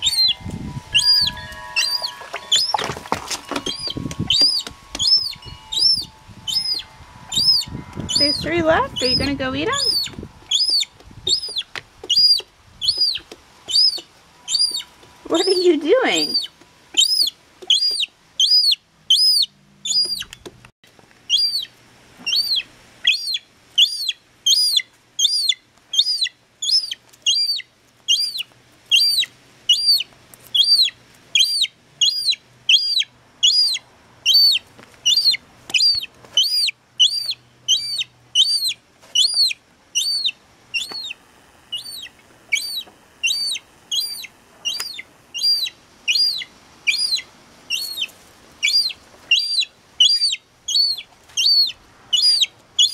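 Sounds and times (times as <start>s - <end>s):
seagull chick peeping: 0.0s - 20.4s, 21.3s - 21.7s, 22.3s - 52.9s.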